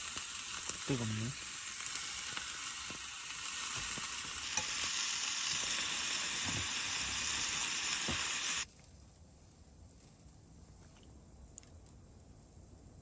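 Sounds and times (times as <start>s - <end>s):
food sizzling in a frying pan: 0.0s - 8.7s.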